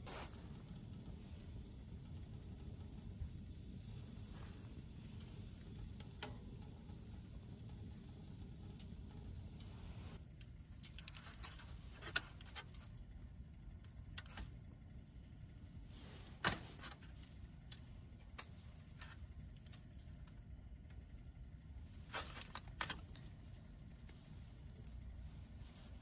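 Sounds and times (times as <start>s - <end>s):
low steady rumble: 0.0s - 26.0s.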